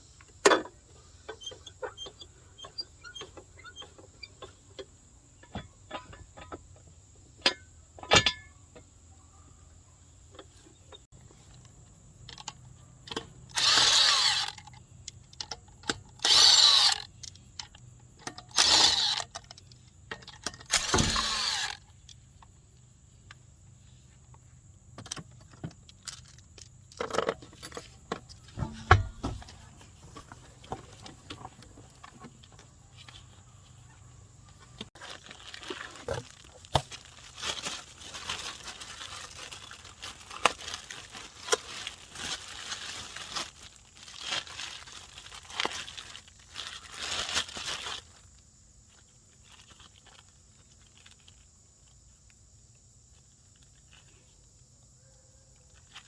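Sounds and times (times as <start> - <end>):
metal tools clinking and knocking: 7.4 - 8.5, 12.2 - 14.8, 15.4 - 21.9, 25.1 - 29.6
power tool bursts: 13.5 - 14.6, 16.2 - 17.0, 18.5 - 19.2, 20.7 - 21.8.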